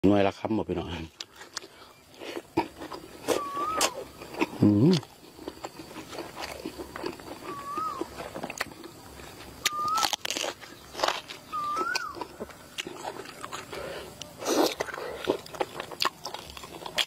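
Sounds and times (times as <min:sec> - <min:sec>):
chewing and crunching: 0:00.9 - 0:17.0
thin whistling chirps: 0:03.2 - 0:04.1, 0:07.4 - 0:08.1, 0:09.6 - 0:12.4.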